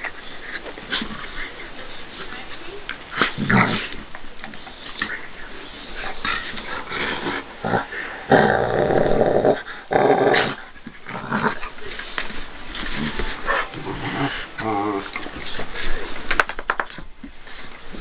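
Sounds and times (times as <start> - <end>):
dogs growling: 3.1 - 4.4, 5.9 - 12.1, 12.7 - 16.2.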